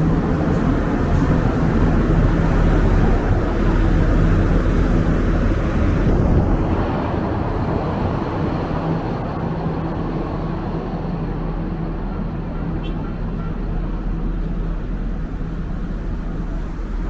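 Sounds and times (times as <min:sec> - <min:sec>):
wind buffeting microphone: 0:00.0 - 0:12.5
faint engine hum: 0:00.0 - 0:17.0.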